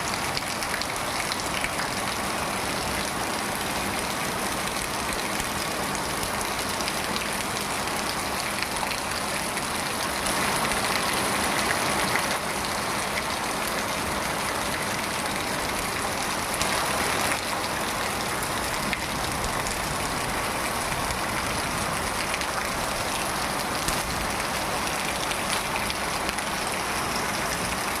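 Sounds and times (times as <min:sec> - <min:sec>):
steady rain falling: 0:00.0 - 0:28.0
raindrop ticks: 0:15.6 - 0:27.9.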